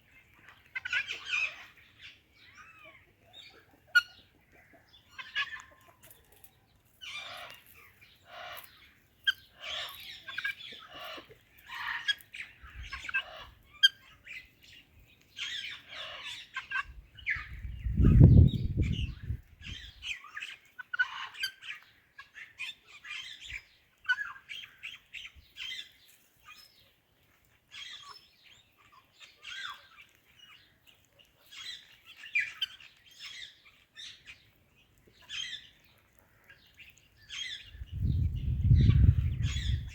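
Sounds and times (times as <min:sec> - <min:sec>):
parakeets chirping and squawking: 0:00.8 - 0:02.1, 0:07.0 - 0:14.0, 0:37.2 - 0:39.9.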